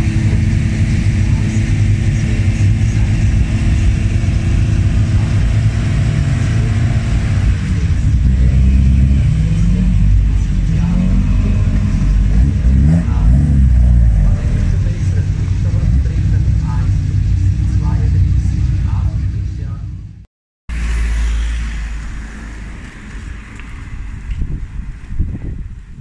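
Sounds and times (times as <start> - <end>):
race car engines idling roughly: 0.0 - 20.0
engine throttle blips: 0.0 - 26.0.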